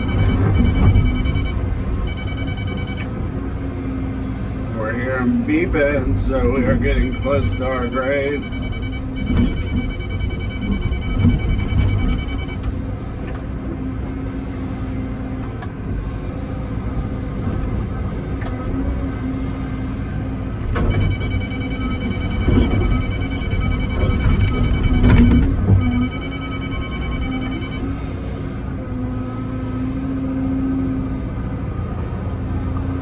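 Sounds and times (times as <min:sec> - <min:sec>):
rapid high beeping: 0:00.0 - 0:03.1, 0:05.8 - 0:12.6, 0:21.0 - 0:27.8
excavator diesel engine: 0:00.0 - 0:33.0.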